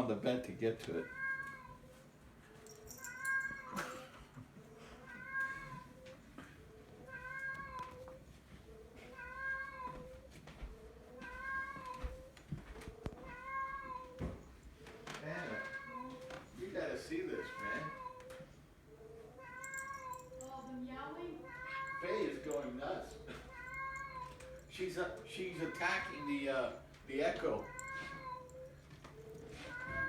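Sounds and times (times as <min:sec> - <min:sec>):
recorded cat meow from speaker: 0:05.0 - 0:06.0, 0:08.8 - 0:10.2, 0:11.2 - 0:12.3, 0:29.6 - 0:30.0.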